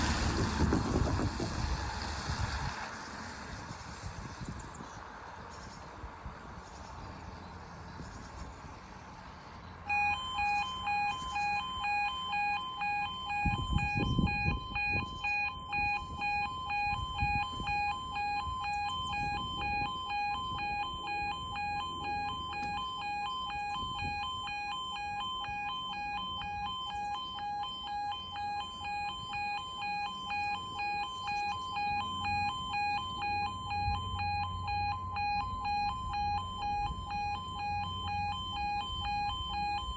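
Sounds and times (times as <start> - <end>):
level crossing two-tone alarm: 9.9 - 39.9.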